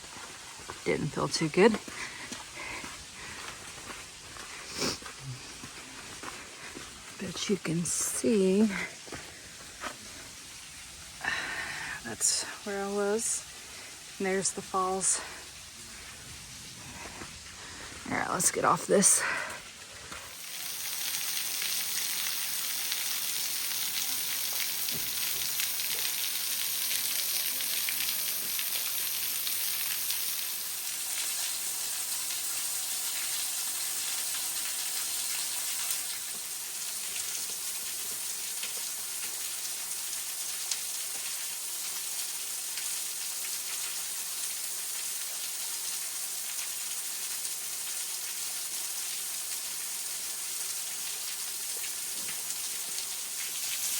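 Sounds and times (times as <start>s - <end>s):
waterfall splashing onto rock: 20.1s - 53.9s.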